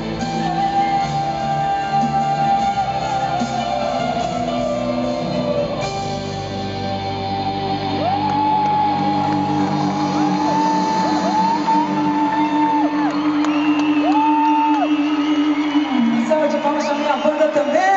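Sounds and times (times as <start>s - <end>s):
person singing: 0.0s - 6.6s
live band playing pop ballad: 0.0s - 17.9s.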